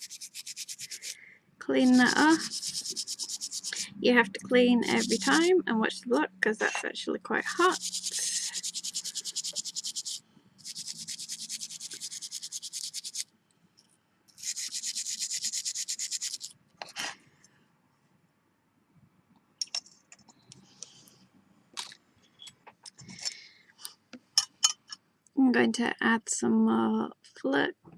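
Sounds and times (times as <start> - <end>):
brush scrubbing metal: 0.0 - 4.0, 4.6 - 5.5, 7.4 - 13.2, 14.4 - 16.5.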